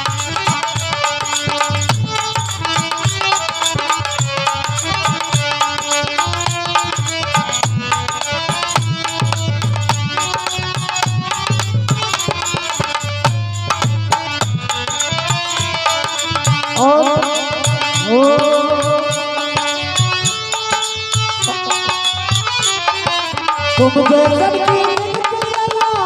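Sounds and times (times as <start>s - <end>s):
fast hand-drum strokes: 0.1s - 26.0s
swooping folk melody: 12.6s - 25.7s.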